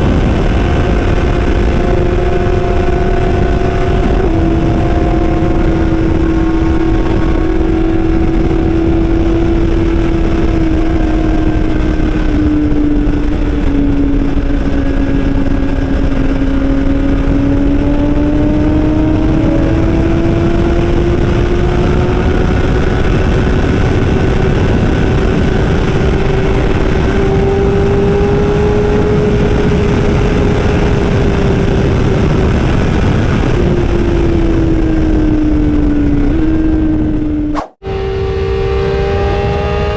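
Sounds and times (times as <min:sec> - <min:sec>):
low rushing rumble: 0:00.0 - 0:21.3
motorcycle engine cruising: 0:00.0 - 0:39.9.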